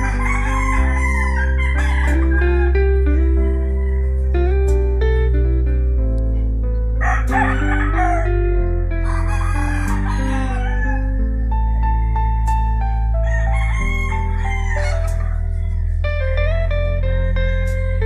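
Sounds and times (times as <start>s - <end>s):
rooster crowing: 0.0s - 4.3s, 7.0s - 8.4s, 9.0s - 11.1s, 13.2s - 15.9s
guitar-like music with bass: 0.0s - 18.0s.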